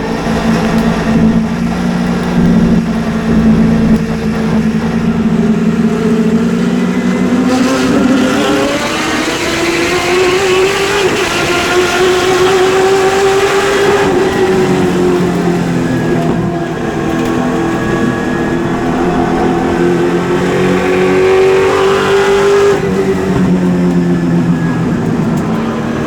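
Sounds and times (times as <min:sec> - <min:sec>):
racing engine accelerating: 0:00.0 - 0:26.0.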